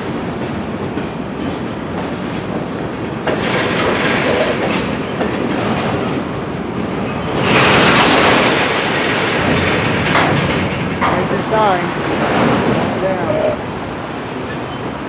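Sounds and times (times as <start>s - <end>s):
freight cars rolling on track: 0.0s - 15.0s
wheels clicking over rail joints: 0.4s - 6.2s, 7.4s - 13.4s.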